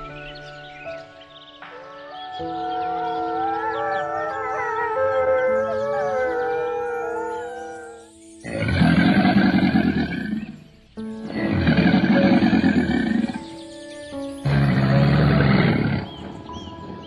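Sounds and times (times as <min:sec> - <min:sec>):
soft background music: 0:00.0 - 0:17.0
big cat roaring: 0:08.4 - 0:10.6, 0:11.3 - 0:13.4, 0:14.4 - 0:16.2.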